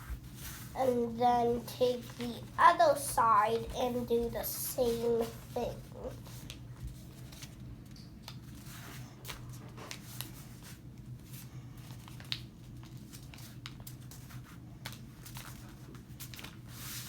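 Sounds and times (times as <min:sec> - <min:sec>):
paper being folded and creased: 0:00.0 - 0:17.0
steady low hum: 0:00.0 - 0:17.0
paper crinkles and taps: 0:06.3 - 0:11.1, 0:11.8 - 0:16.8.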